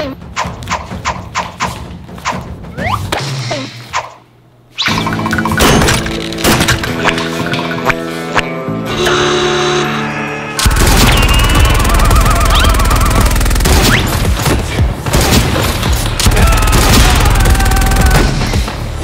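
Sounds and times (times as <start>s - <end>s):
rapid gunfire bursts: 10.6s - 18.4s
loud driving action music: 10.6s - 19.0s.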